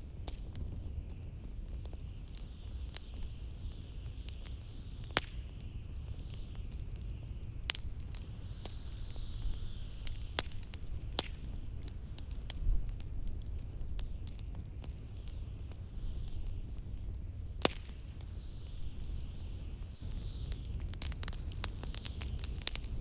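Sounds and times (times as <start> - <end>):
wood fire crackling and popping: 0.0 - 23.0
wind hiss: 14.9 - 23.0.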